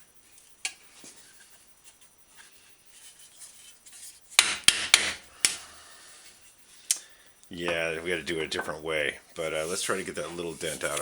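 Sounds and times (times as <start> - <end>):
hand tools tapping and clicking: 4.4 - 5.6.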